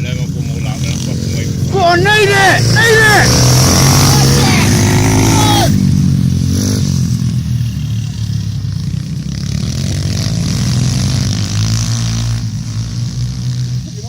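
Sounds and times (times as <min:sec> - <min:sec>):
pit bike engines racing: 0:00.0 - 0:14.0.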